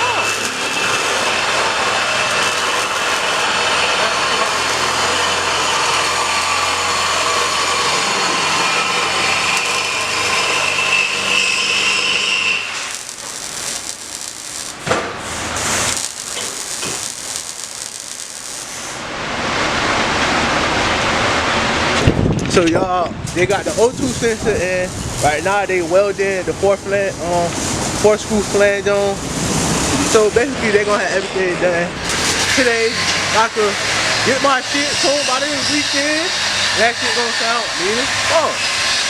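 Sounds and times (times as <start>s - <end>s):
power tool hissing and whining: 0.0s - 19.1s, 32.0s - 39.0s.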